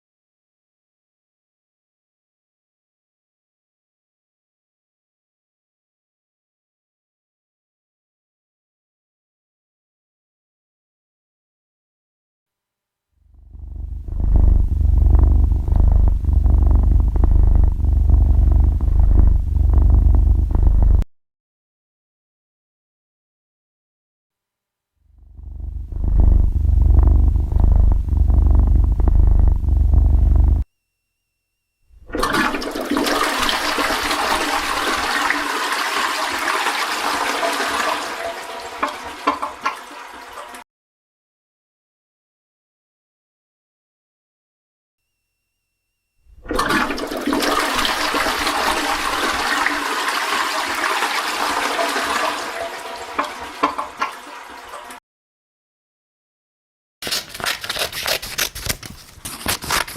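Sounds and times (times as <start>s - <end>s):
cat purring: 13.4s - 21.0s, 25.2s - 30.6s
running water rushing: 32.1s - 40.6s, 46.5s - 55.0s.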